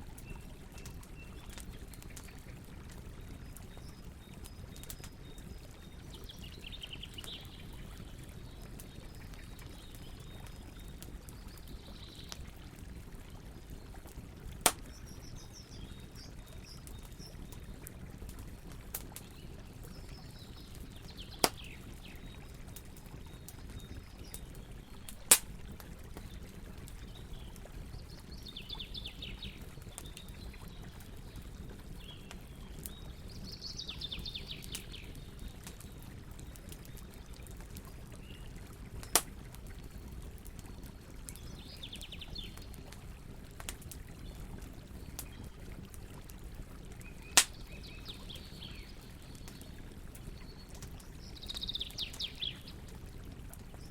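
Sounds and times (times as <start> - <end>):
campfire crackling: 0.0 - 53.9
fire pops: 14.6 - 15.4, 21.3 - 21.8, 25.0 - 27.0, 38.9 - 39.5, 47.3 - 47.8.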